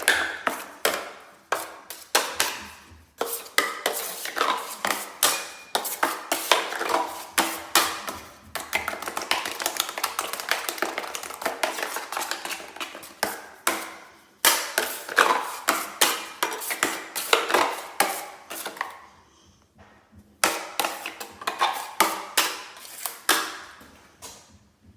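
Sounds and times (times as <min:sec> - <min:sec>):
drywall knife scraping mud pan: 0:00.0 - 0:09.4.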